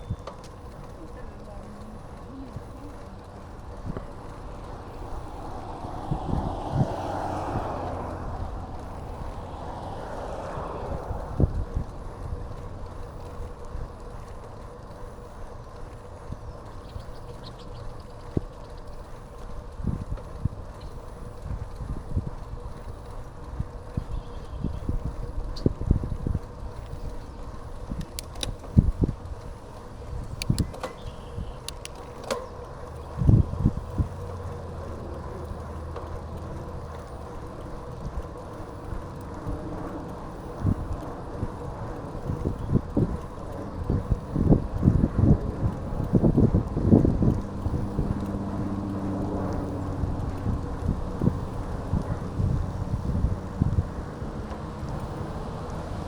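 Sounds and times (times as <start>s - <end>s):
bike rattling over bumps: 0.0s - 56.0s
wind and rolling rumble: 0.0s - 56.0s
faint quick ticking: 22.9s - 56.0s
sharp clicks: 27.6s - 29.0s, 30.1s - 33.0s.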